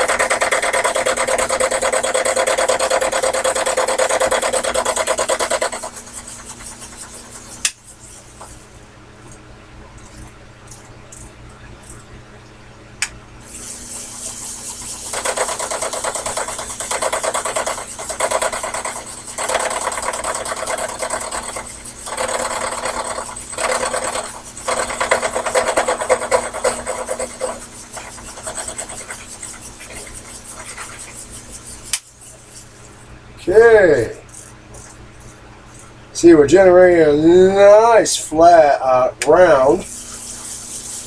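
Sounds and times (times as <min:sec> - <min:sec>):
lathe motor hum: 0:00.0 - 0:07.7, 0:14.2 - 0:31.4
cutting tool scraping workpiece: 0:00.0 - 0:07.8, 0:14.3 - 0:32.0.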